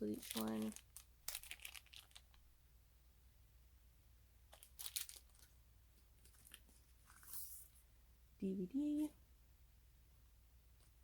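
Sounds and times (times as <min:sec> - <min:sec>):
faint packaging rustling: 0:00.0 - 0:02.5, 0:04.5 - 0:07.9.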